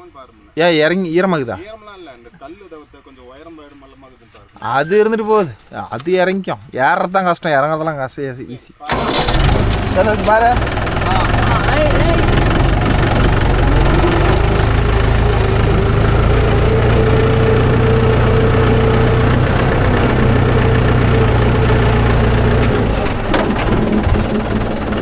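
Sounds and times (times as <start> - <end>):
tractor diesel engine running: 8.9 - 25.0
sharp knocks: 22.6 - 25.0.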